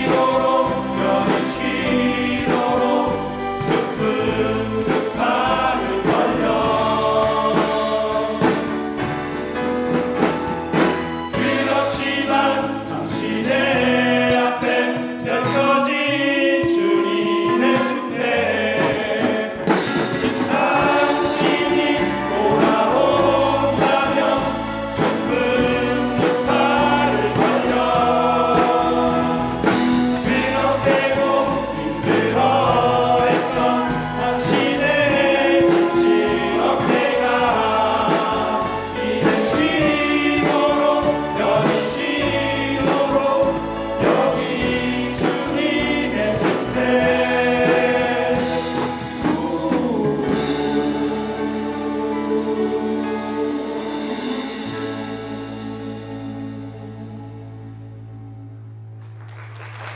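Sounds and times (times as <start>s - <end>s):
men's choir singing a hymn: 0.0s - 57.4s.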